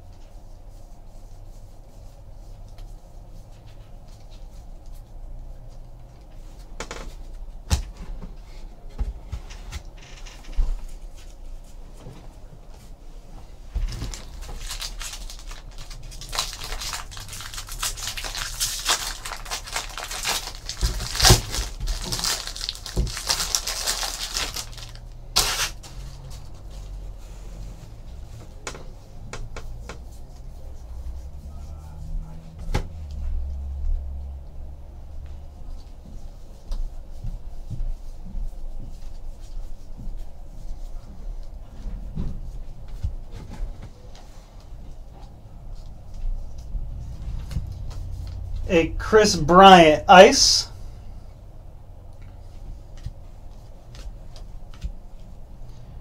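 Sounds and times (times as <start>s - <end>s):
wrappers and cards crinkling: 13.8s - 26.6s.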